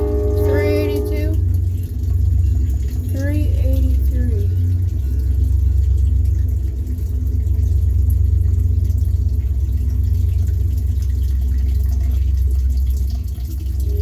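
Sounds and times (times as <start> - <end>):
freight train rumbling past: 0.0 - 1.8
faint trickle of water: 0.0 - 14.0.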